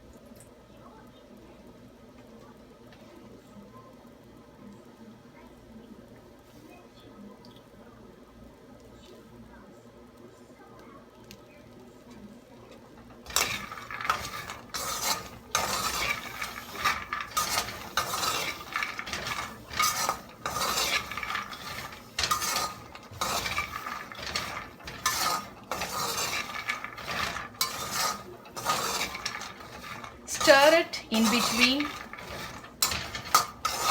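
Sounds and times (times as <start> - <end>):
peanuts scraping and rattling in pan: 12.6 - 33.9.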